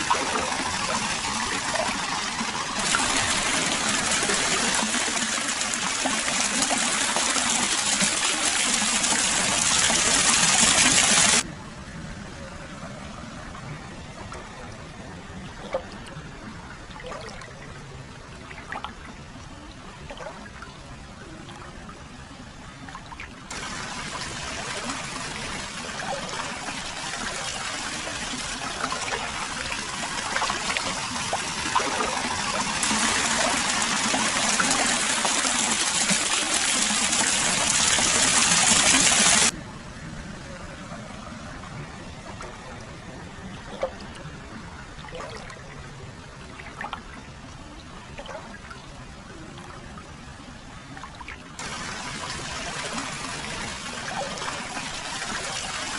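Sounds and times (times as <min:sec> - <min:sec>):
water pouring and splashing: 0:00.0 - 0:11.5, 0:16.9 - 0:17.7, 0:20.0 - 0:20.8, 0:22.9 - 0:39.6, 0:43.6 - 0:44.3, 0:45.0 - 0:45.8, 0:46.4 - 0:47.2, 0:48.1 - 0:48.9, 0:51.0 - 0:55.9
water trickling and dripping: 0:00.0 - 0:11.5, 0:22.9 - 0:39.6.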